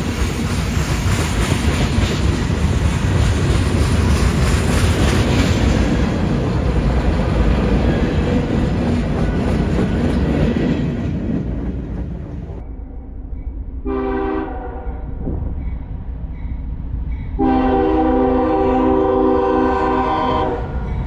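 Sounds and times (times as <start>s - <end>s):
freight train wheels rumbling: 0.0s - 21.0s
locomotive air horn blasts: 13.8s - 15.0s, 17.4s - 20.8s.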